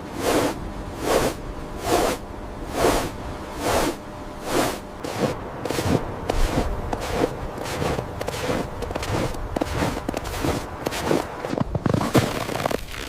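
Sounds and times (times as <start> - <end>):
footsteps crunching through snow: 0.2 - 13.0.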